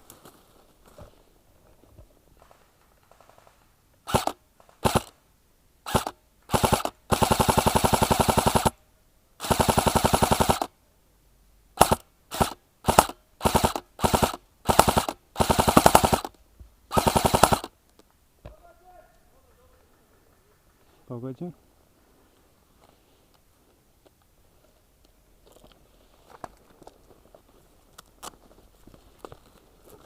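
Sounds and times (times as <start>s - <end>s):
airsoft rifle firing bursts: 3.1s - 5.2s, 5.9s - 8.8s, 9.4s - 10.7s, 11.8s - 16.3s, 16.9s - 17.7s.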